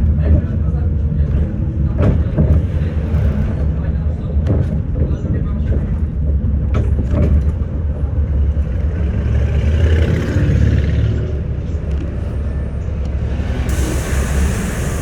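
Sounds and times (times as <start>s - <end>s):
bus engine rumble: 0.0s - 15.0s
hissing noise: 13.4s - 15.0s.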